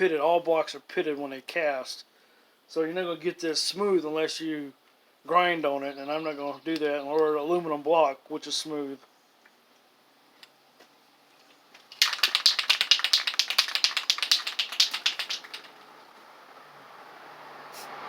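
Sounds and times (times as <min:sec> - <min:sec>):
spray can rattling when shaken: 0:11.9 - 0:15.8.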